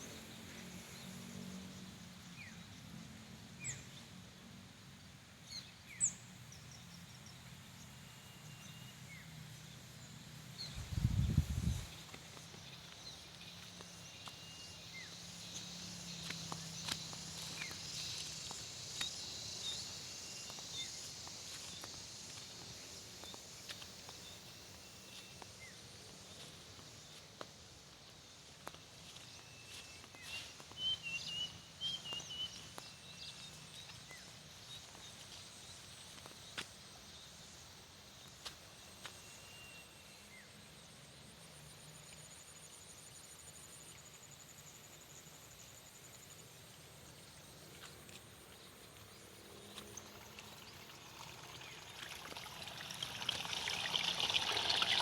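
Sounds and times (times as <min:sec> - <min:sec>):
footsteps on earth: 0:10.8 - 0:36.8, 0:47.6 - 0:50.5.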